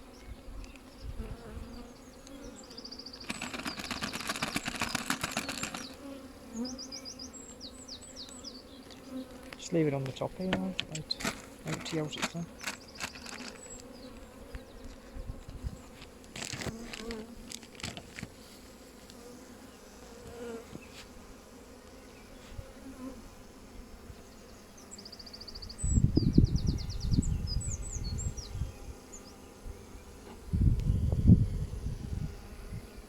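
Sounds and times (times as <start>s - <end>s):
honeybees buzzing: 0.0s - 33.0s
low rumbles on microphone: 30.5s - 32.4s.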